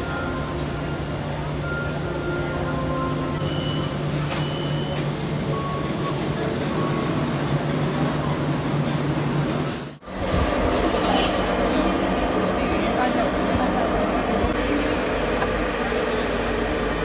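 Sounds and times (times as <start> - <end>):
short high beeps: 0.0 - 6.2
electric train humming: 0.0 - 17.0.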